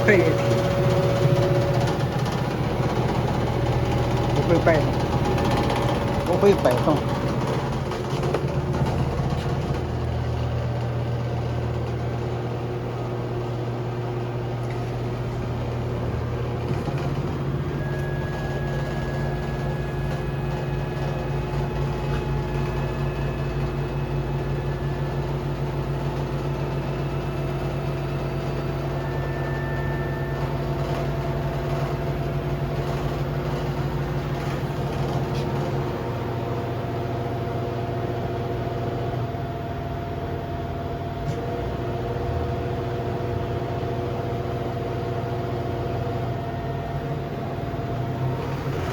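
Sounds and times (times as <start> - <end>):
washing machine drum spinning: 0.0 - 37.8, 47.8 - 48.9.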